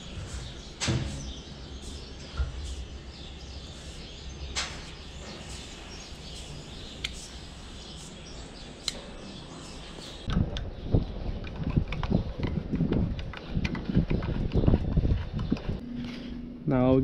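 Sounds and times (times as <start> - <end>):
low background hum: 12.3 - 17.0.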